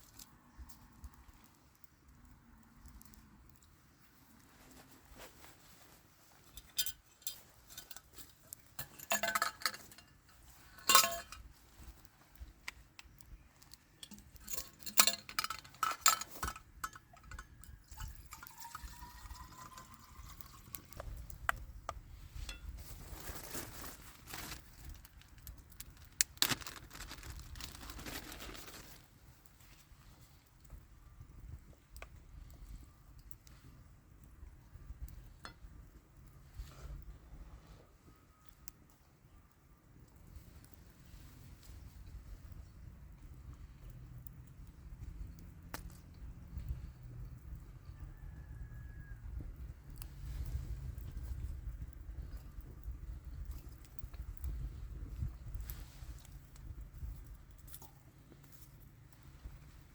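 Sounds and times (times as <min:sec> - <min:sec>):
cookware clinking and knocking: 0:08.8 - 0:10.0, 0:10.8 - 0:11.4
liquid pouring into vessel: 0:17.3 - 0:21.0.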